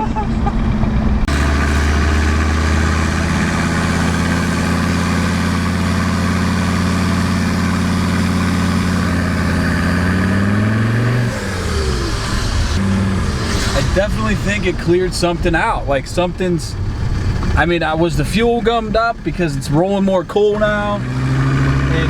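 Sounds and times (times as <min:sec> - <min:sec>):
diesel engine accelerating: 0:00.0 - 0:22.0.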